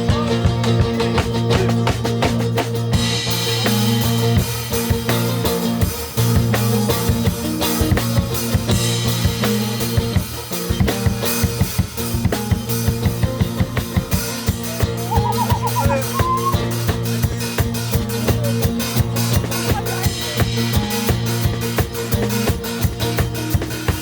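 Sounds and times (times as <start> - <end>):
steady drum beats: 0.0 - 24.0
bowed string melody improvising: 14.3 - 19.7.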